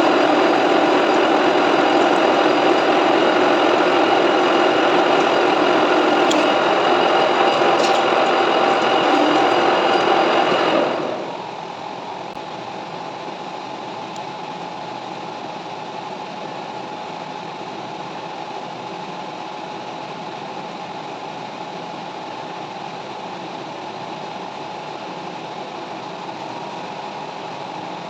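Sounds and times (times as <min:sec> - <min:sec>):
lathe cutting noise: 0:00.0 - 0:11.8
metal lathe running hum: 0:00.0 - 0:12.4
faint machine whine: 0:00.0 - 0:15.5.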